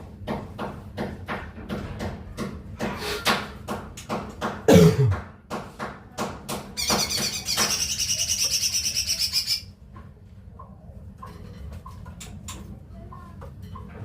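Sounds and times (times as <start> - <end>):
bird chattering trill: 6.8 - 9.7.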